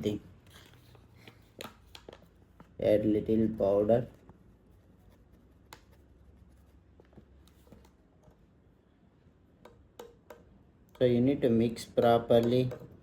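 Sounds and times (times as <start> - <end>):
spoon clicking and scraping in bowl: 9.7 - 10.5.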